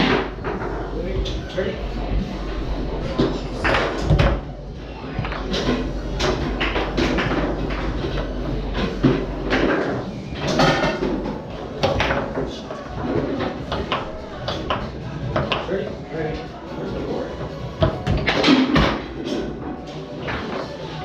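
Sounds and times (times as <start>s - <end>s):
foosball ball and rods knocking: 0.0s - 0.9s, 5.2s - 15.7s, 17.8s - 19.6s.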